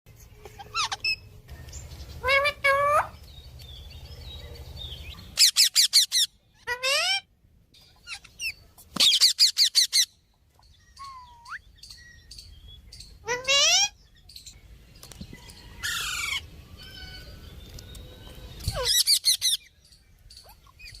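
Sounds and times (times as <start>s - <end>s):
parrot calling: 0.4s - 1.4s, 2.2s - 3.2s, 5.2s - 7.3s, 13.1s - 14.0s.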